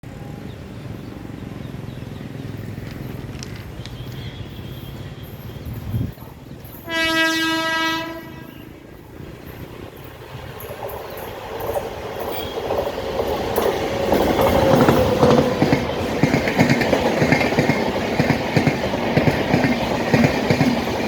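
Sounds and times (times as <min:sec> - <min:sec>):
low rumble of train: 0:00.0 - 0:21.0
train horn blast: 0:06.8 - 0:08.9.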